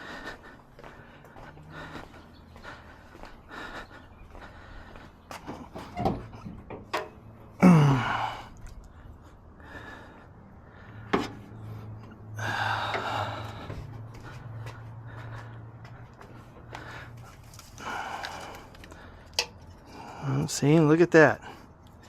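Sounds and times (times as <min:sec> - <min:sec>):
clicks and knocks of car parts: 0:05.4 - 0:07.2, 0:19.3 - 0:19.7.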